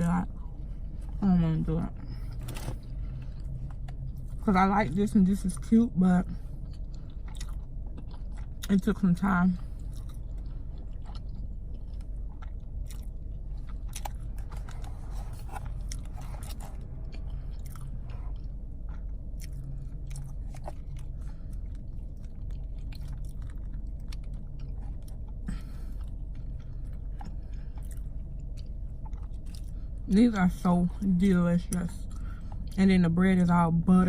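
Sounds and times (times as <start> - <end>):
low hum: 0.0 - 34.0
chewing and biting food: 6.3 - 30.0.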